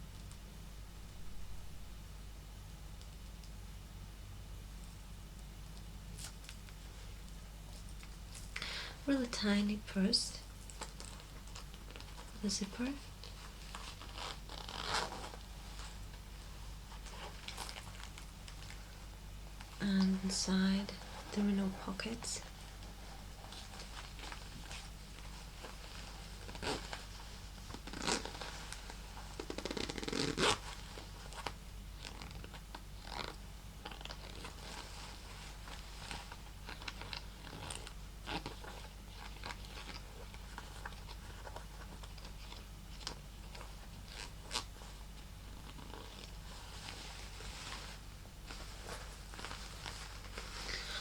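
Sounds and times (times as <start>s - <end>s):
fingers tapping and scratching purse: 29.4s - 30.6s.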